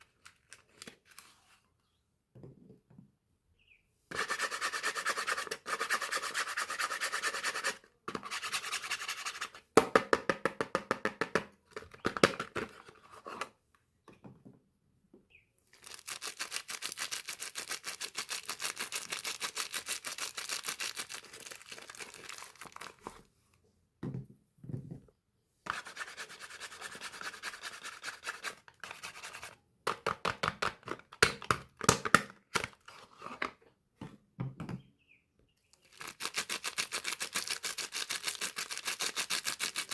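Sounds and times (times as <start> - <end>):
soap wrapping crinkling: 15.7 - 23.2, 35.8 - 39.9.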